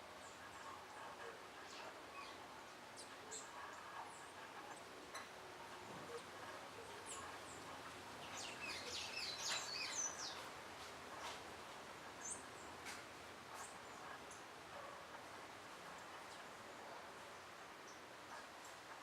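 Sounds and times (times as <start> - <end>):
small birds chirping: 6.4 - 10.5.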